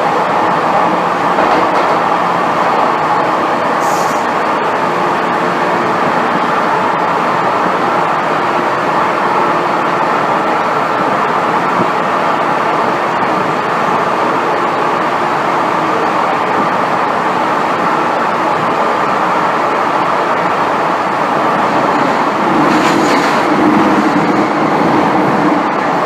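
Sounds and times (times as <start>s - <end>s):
train rumbling from inside carriage: 0.0s - 26.0s.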